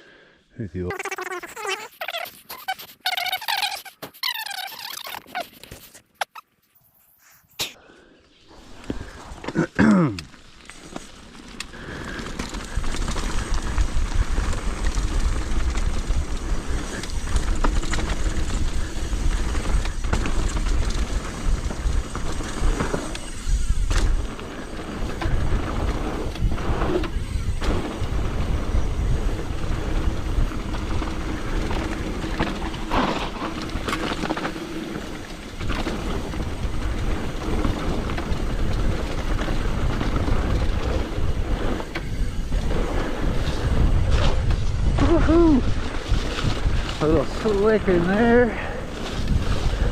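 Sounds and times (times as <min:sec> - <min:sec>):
tyres on dirt: 0:08.5 - 0:49.9
bike clattering over bumps: 0:10.3 - 0:45.0
wind rumble on microphone: 0:12.7 - 0:33.6, 0:35.6 - 0:49.9.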